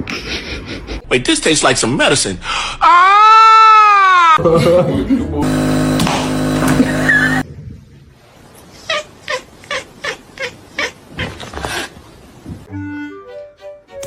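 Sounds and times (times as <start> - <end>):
loud steady pitched tones: 5.4 - 7.4.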